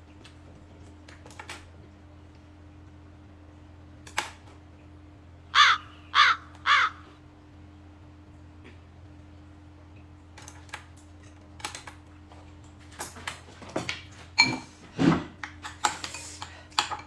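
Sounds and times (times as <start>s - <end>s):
crow cawing: 5.5s - 7.2s.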